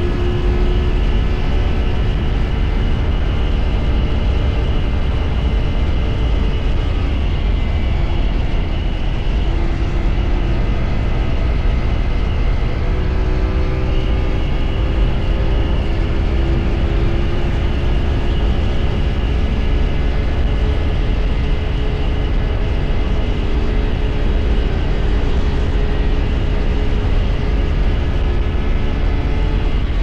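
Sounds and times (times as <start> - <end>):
motorcycle engine rumbling: 0.0 - 5.8.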